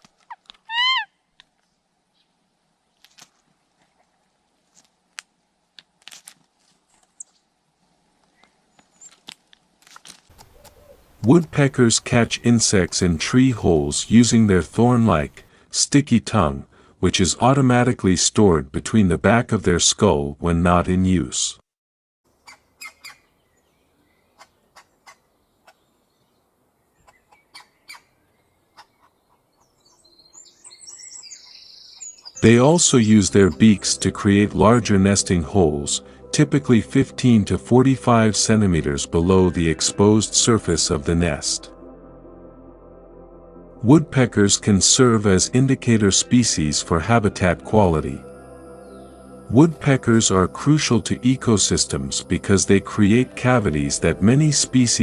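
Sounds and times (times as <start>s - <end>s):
bird chirps: 10.4s - 15.5s, 22.4s - 33.8s.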